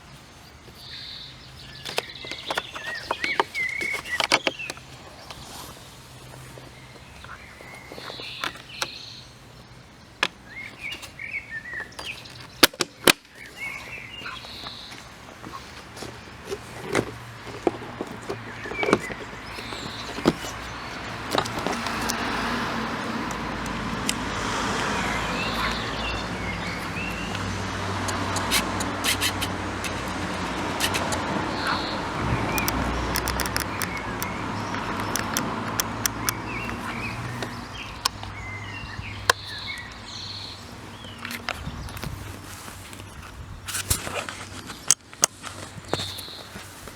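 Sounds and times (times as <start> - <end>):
birds chirping: 0.0 - 46.9
motor vehicle engine: 15.4 - 42.6
sharp clicks: 25.6 - 38.3.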